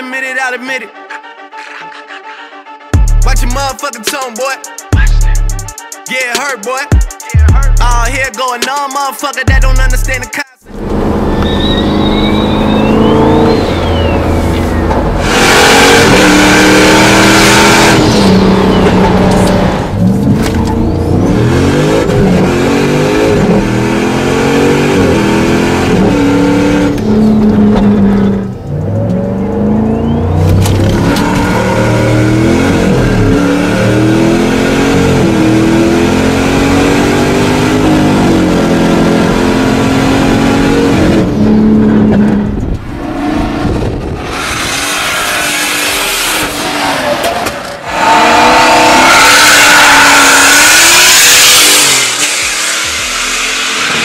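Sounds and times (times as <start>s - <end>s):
car engine accelerating hard: 10.7s - 54.0s
turbo whistle: 11.3s - 14.9s, 29.6s - 30.4s.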